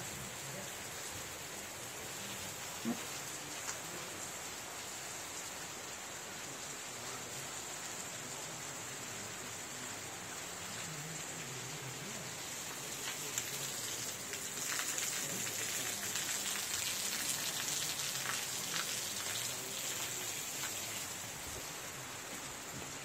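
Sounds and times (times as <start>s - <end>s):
heavy rain falling: 0.0s - 23.0s
close raindrop ticks: 2.9s - 3.9s, 12.5s - 20.9s.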